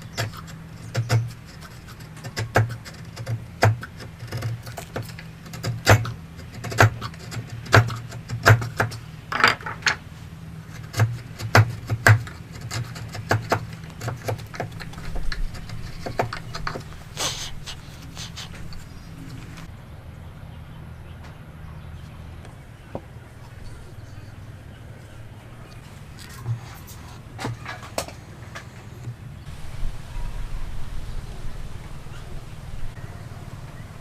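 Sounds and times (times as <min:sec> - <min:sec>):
low steady hum: 0:00.0 - 0:34.0
taps and knocks on wood: 0:02.2 - 0:10.0, 0:10.9 - 0:16.9.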